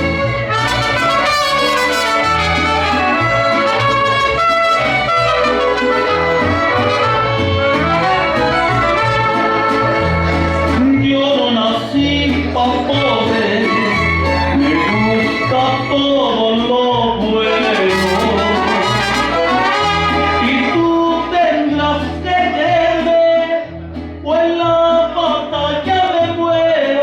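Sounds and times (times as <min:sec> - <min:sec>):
trumpets playing melody: 0:00.0 - 0:10.8, 0:13.5 - 0:16.0, 0:17.4 - 0:20.8
repeating bass line: 0:00.0 - 0:23.1.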